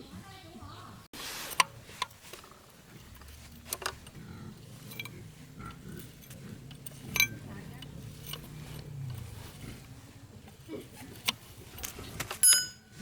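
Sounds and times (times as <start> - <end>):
low steady hum: 1.5 - 13.0
hand tools knocking on metal: 12.4 - 13.0.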